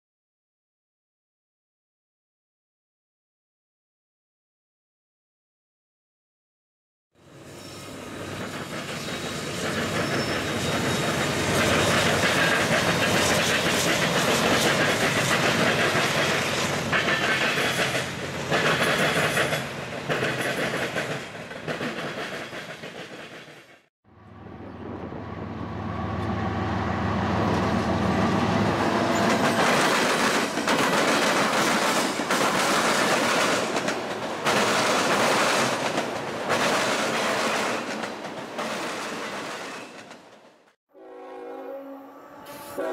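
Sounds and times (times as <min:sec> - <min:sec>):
train rumble: 0:07.2 - 0:40.7
train wheels clacking over rail joints: 0:08.3 - 0:23.8, 0:29.0 - 0:40.5.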